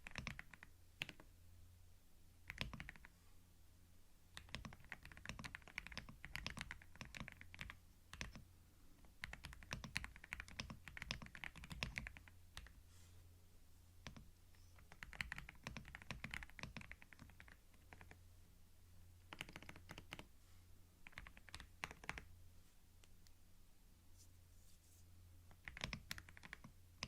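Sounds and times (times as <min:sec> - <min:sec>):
computer keyboard typing: 0:00.0 - 0:01.3, 0:02.4 - 0:03.1, 0:04.4 - 0:08.4, 0:09.1 - 0:12.8, 0:14.0 - 0:18.2, 0:19.3 - 0:20.3, 0:21.0 - 0:22.3, 0:25.5 - 0:27.0
faint low hum: 0:00.0 - 0:27.0.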